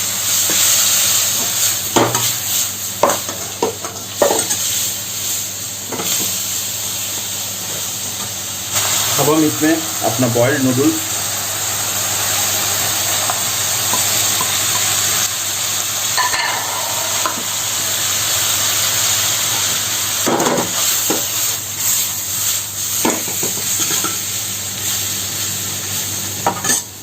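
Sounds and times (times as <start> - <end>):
noodles sizzling in pan: 0.0 - 27.0.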